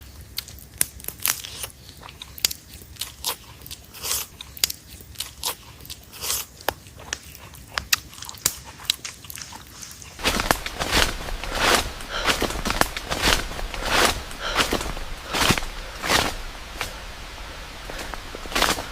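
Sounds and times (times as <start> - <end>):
crunching clicks: 6.6 - 17.0
rustling swishes: 9.4 - 18.9.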